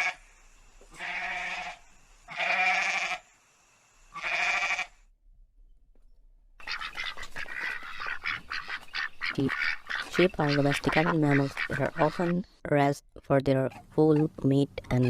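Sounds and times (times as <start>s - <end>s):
livestock bleating: 0.0s - 0.2s, 0.9s - 3.3s, 4.1s - 5.0s.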